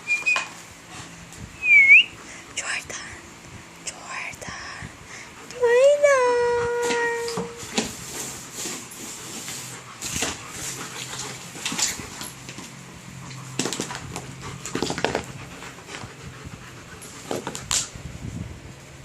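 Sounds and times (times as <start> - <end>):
steady low hum: 0.0 - 19.0
dog whimpering: 5.6 - 7.7.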